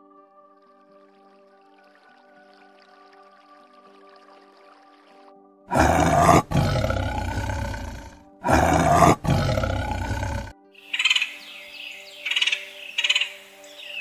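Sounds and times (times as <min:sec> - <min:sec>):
soft background music: 0:00.0 - 0:14.0
big cat roaring: 0:05.7 - 0:10.5
bird chirp: 0:10.8 - 0:14.0.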